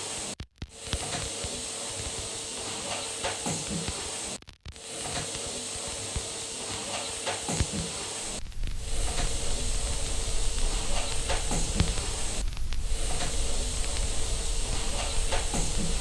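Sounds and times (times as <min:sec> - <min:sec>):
white-noise hiss: 0:07.3 - 0:16.0
faint hum: 0:08.2 - 0:16.0.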